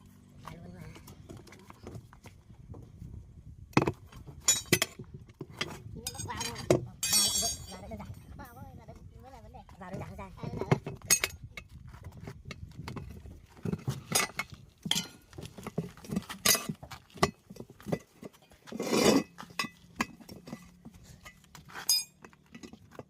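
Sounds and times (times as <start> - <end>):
metallic clinks of hand tools: 6.1 - 7.8, 21.8 - 22.7.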